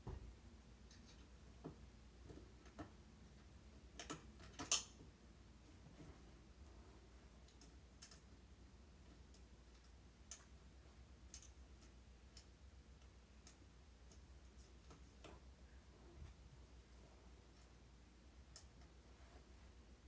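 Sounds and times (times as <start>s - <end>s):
faint sharp clicks and taps: 11.2s - 15.6s.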